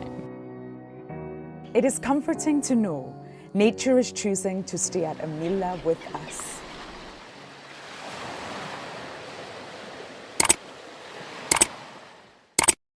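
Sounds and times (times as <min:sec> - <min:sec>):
surf washing in: 0:05.1 - 0:12.6
sharp double clicks: 0:10.4 - 0:10.6, 0:11.5 - 0:11.7, 0:12.6 - 0:12.8.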